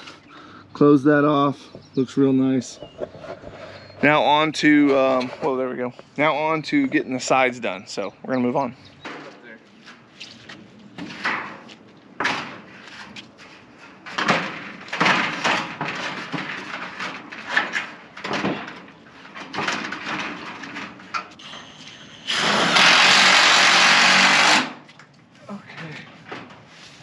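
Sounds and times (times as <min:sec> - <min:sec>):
building materials clattering: 0:12.2 - 0:21.7
power tool running: 0:22.2 - 0:24.8.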